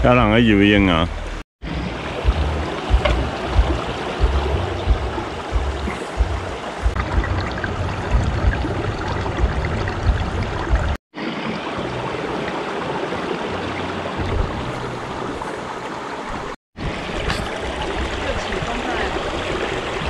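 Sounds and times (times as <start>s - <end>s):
low rumbling: 0.0s - 11.0s, 13.8s - 15.4s
creek water flowing: 0.0s - 20.0s.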